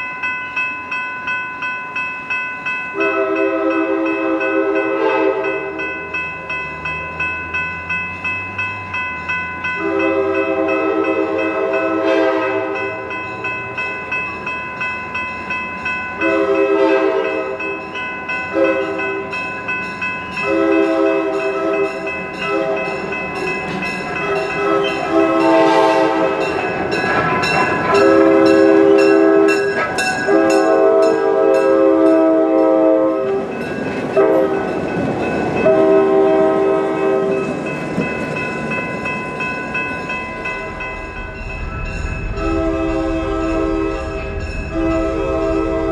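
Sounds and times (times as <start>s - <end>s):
train running by: 0.0s - 45.9s
locomotive warning horn blasts: 3.0s - 5.8s, 9.8s - 13.0s, 16.2s - 17.7s, 18.5s - 19.2s, 20.4s - 23.2s, 24.2s - 33.6s, 34.2s - 34.7s, 35.6s - 37.6s, 42.4s - 45.9s.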